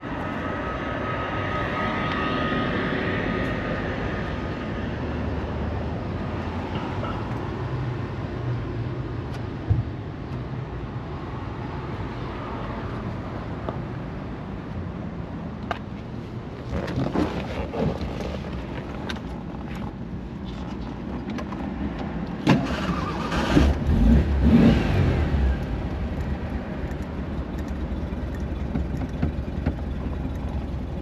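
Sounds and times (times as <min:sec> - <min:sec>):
car engine idling: 0:23.0 - 0:31.0.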